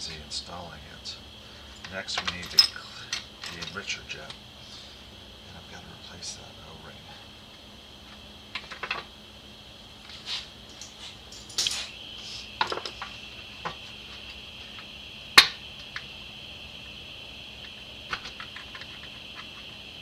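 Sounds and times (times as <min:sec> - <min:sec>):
steady high-pitched hiss: 0:00.0 - 0:20.0
metal parts clicking on a workbench: 0:01.7 - 0:04.4, 0:08.5 - 0:09.1, 0:10.0 - 0:12.0.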